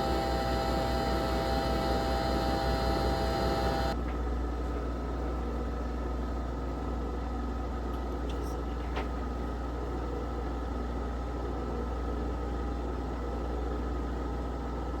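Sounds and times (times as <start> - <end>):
coffee machine whirring: 0.0 - 4.0.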